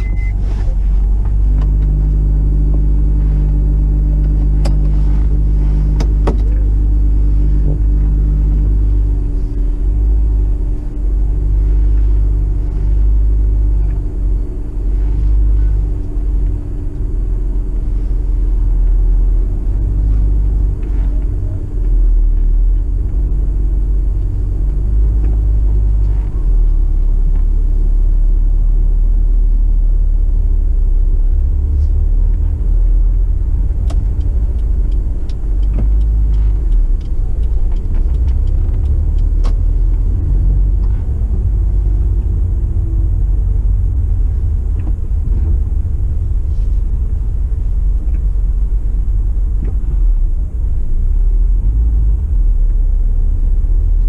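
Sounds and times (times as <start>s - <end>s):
car engine droning inside cabin: 0.0s - 54.0s
light clicks and ticks: 33.4s - 41.1s.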